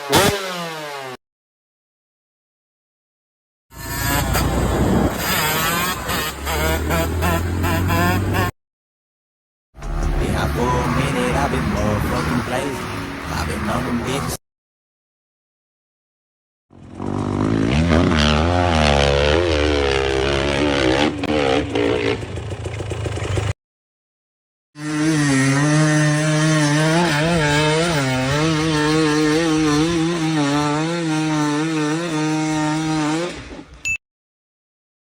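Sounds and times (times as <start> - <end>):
dirt bike engine revving: 0.0 - 1.2, 3.7 - 8.5, 9.8 - 14.4, 16.7 - 23.6, 24.8 - 33.8.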